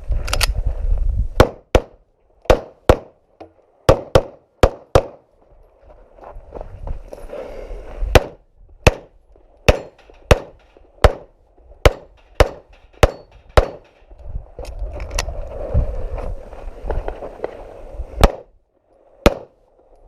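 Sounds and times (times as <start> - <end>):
pistol shots: 2.5 - 3.1, 3.9 - 5.2, 8.2 - 9.1, 9.7 - 13.8, 19.3 - 19.6.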